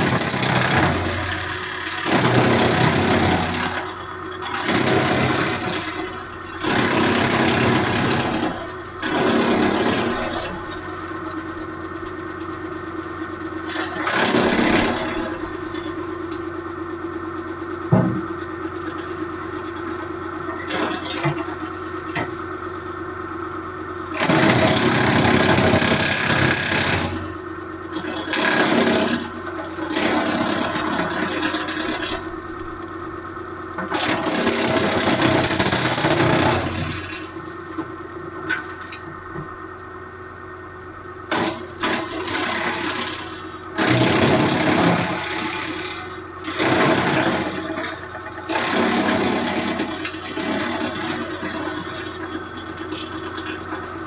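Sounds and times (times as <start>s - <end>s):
material going through chipper: 0.0s - 12.0s, 13.0s - 16.4s, 24.1s - 33.0s, 33.7s - 39.2s, 41.3s - 54.0s
wood chipper engine running: 0.0s - 54.0s.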